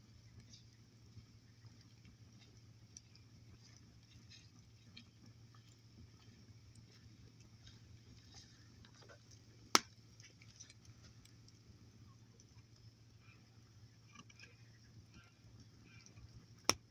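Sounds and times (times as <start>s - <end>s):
campfire crackling: 0.0s - 16.9s.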